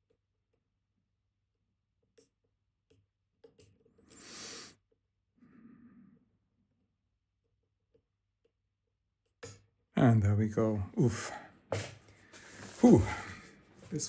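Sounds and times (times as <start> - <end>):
person breathing out hard: 11.2 - 13.6
soft sigh: 12.4 - 14.0.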